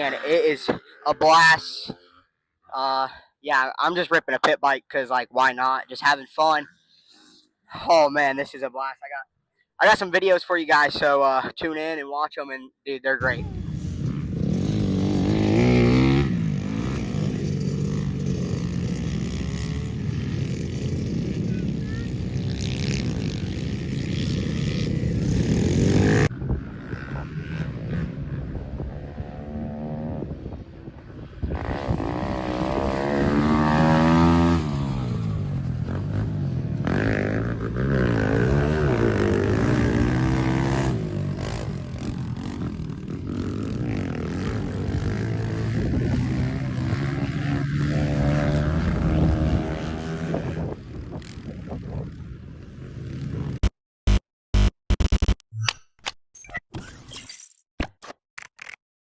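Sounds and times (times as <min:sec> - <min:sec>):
pit bike engine revving: 0:13.4 - 0:28.1, 0:31.5 - 0:50.7.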